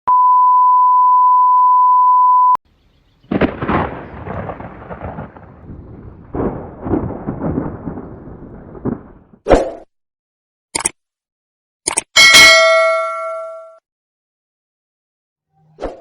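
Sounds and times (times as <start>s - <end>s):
steady beep tone: 0.1s - 2.6s
rolling thunder: 3.2s - 9.4s.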